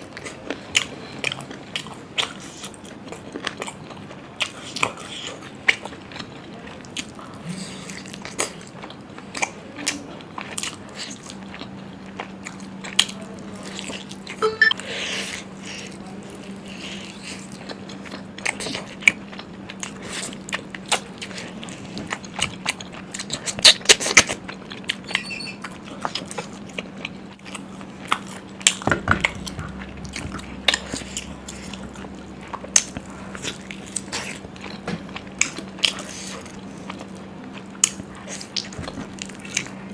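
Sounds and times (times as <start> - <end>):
chewing and biting food: 0.0 - 14.4, 15.0 - 39.9
steady low hum: 25.7 - 39.9.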